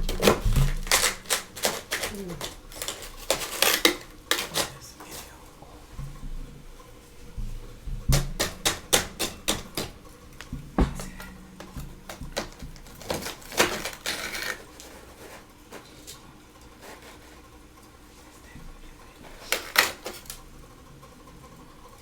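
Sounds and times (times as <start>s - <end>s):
frost crunching as chewed: 0.0s - 17.6s.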